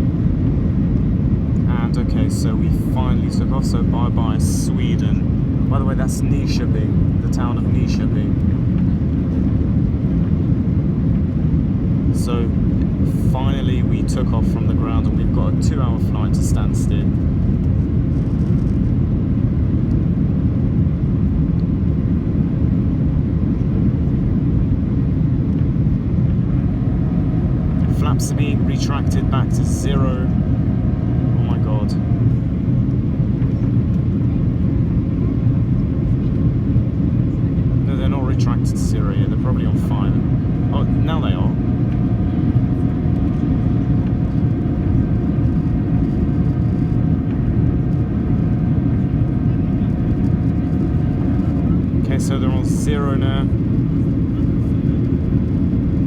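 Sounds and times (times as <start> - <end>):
airliner cabin roar: 0.0 - 56.0
jet engines rumbling: 0.0 - 56.0
rushing air: 25.2 - 33.4.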